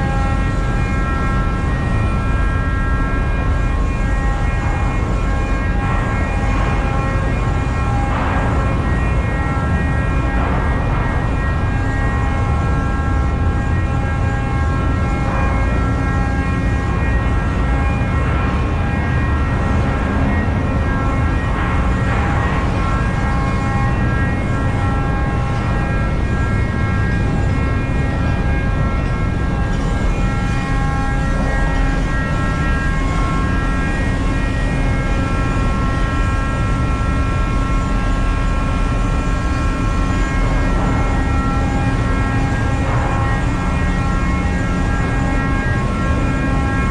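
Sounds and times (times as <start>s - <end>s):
engine room low drone: 0.0s - 46.9s
high-pitched machinery whines: 0.0s - 46.9s.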